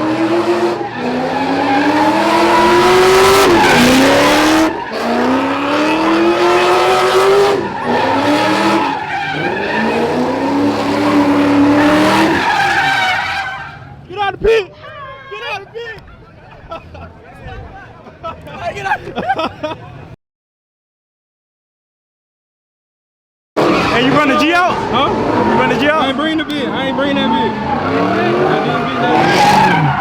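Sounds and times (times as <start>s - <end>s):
car engine revving: 0.0s - 14.1s, 23.6s - 30.0s
tyres squealing: 0.3s - 15.8s, 23.6s - 30.0s.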